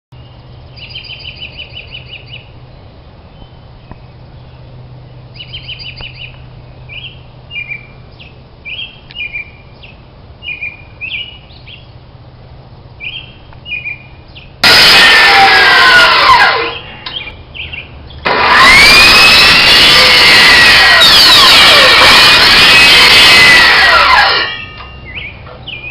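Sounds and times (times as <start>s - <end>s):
small birds chirping and trilling: 0.2s - 14.6s, 16.6s - 25.9s
low steady hum: 0.2s - 18.7s
loud machine with gliding pitch: 14.6s - 17.2s, 18.2s - 25.0s.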